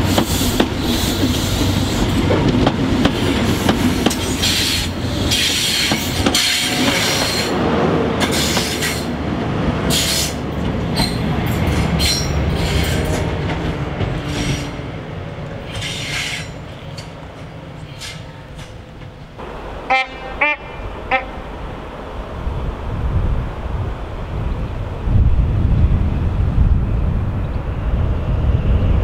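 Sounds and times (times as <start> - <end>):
diesel engine hum: 19.4 - 23.0.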